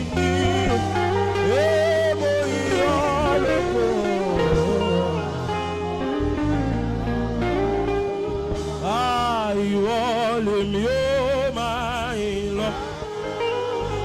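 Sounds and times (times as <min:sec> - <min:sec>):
backing chords and bass: 0:00.0 - 0:14.0
gospel saxophone melody: 0:00.0 - 0:14.0.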